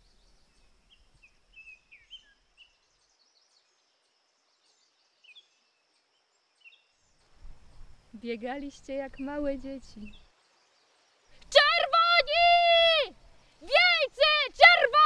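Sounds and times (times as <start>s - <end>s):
faint songbird chirps: 0.0s - 15.0s.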